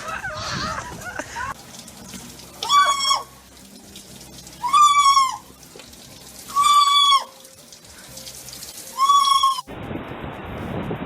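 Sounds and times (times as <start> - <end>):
parrot calling loudly: 4.6 - 5.5, 9.0 - 9.7.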